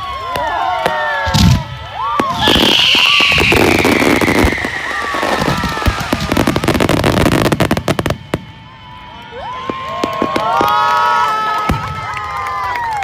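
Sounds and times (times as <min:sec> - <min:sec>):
crowd cheering: 0:00.0 - 0:13.0
fireworks bursting and crackling: 0:00.2 - 0:12.7
long falling whistle: 0:02.1 - 0:10.6.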